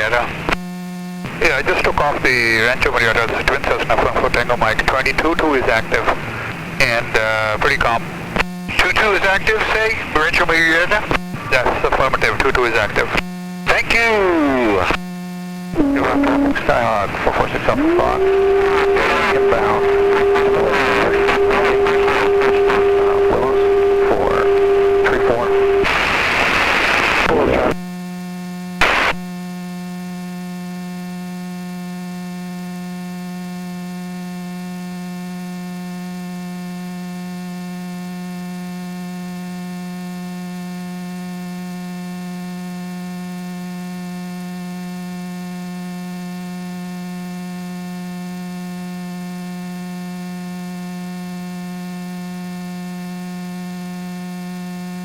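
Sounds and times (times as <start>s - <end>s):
electrical hum: 0.0s - 31.7s.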